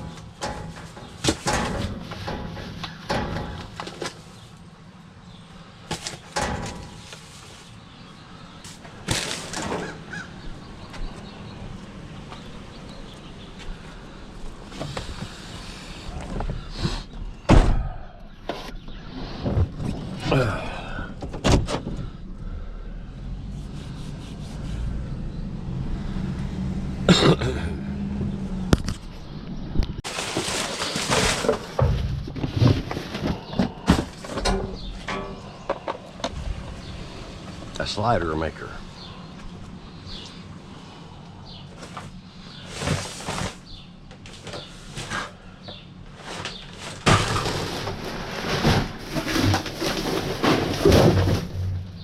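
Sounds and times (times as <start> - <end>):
objects knocking and clattering: 0.0 - 4.2, 5.9 - 7.2, 30.0 - 36.4, 46.3 - 52.0
vehicle engine rumbling: 0.0 - 52.0.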